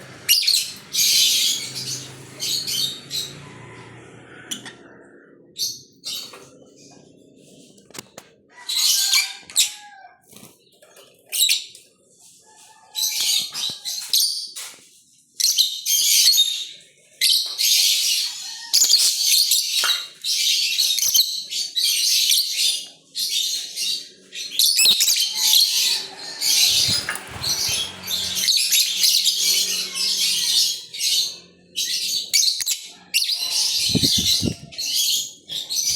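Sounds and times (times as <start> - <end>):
small birds chirping: 0.0 - 3.4, 17.3 - 35.9.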